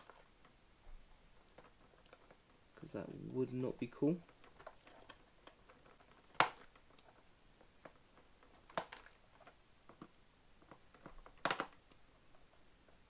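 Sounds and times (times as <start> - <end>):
plastic tray rustling and clicking: 4.2 - 13.0.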